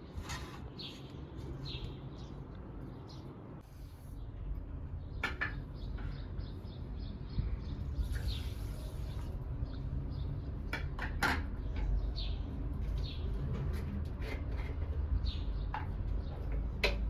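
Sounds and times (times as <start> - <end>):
birds chirping: 0.0 - 10.8, 11.4 - 13.8.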